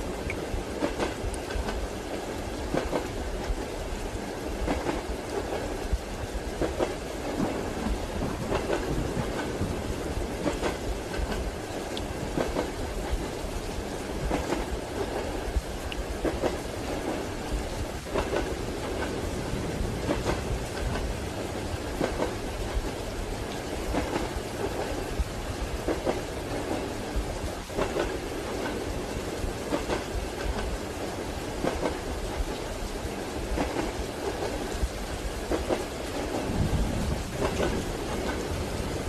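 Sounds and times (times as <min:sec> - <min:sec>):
soft rain: 0:00.0 - 0:39.0
train rumble: 0:00.0 - 0:39.0
train wheels clacking: 0:00.3 - 0:01.8, 0:04.6 - 0:05.8, 0:06.5 - 0:13.4, 0:18.0 - 0:19.2, 0:19.8 - 0:23.0, 0:27.7 - 0:32.6, 0:33.5 - 0:34.8, 0:35.4 - 0:39.0.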